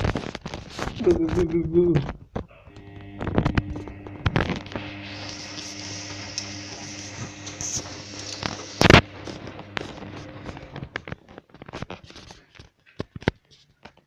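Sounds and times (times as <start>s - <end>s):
clicks: 1.3s - 11.3s
washing machine humming: 2.7s - 11.0s.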